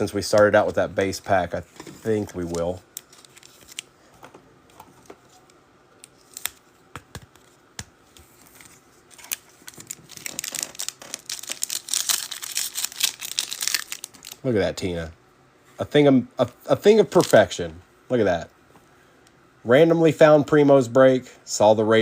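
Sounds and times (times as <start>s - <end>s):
foil wrapper crinkling and tearing: 2.4s - 3.9s, 9.1s - 14.4s
cards clicking and tapping: 6.4s - 8.3s.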